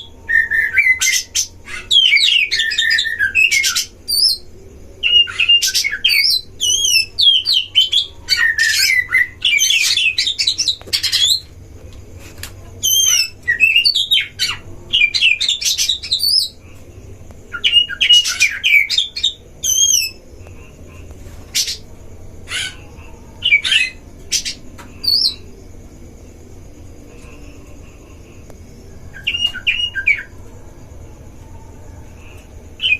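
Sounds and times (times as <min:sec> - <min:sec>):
birds singing whistled phrases: 0:00.0 - 0:11.5, 0:12.8 - 0:16.6, 0:17.5 - 0:20.2, 0:23.4 - 0:25.5, 0:29.1 - 0:30.4.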